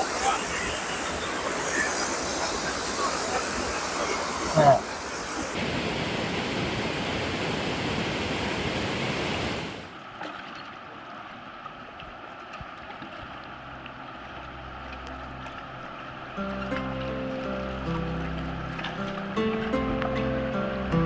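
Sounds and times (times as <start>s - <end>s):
waterfall rushing water: 0.0s - 10.0s
steady water hiss: 0.0s - 10.1s, 13.4s - 21.0s.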